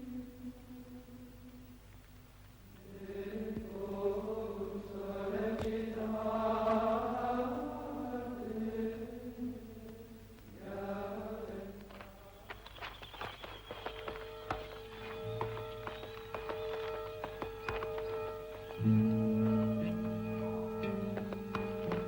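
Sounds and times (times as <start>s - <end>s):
voices chanting held notes: 2.8s - 22.0s.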